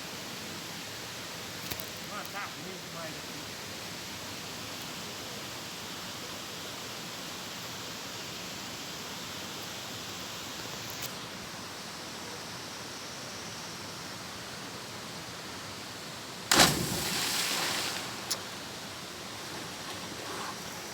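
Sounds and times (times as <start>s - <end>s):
loud sudden burst of noise: 16.5s - 18.2s.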